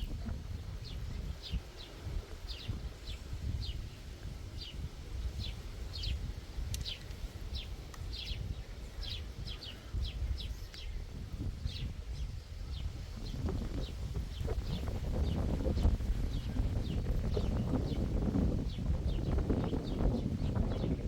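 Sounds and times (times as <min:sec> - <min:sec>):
small bird chirping: 0:04.6 - 0:18.0.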